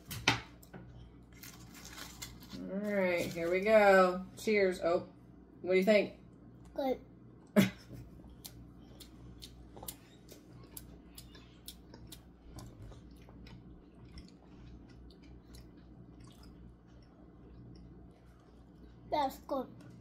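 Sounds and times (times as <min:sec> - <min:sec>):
wet mouth clicks while chewing: 0:08.4 - 0:19.0.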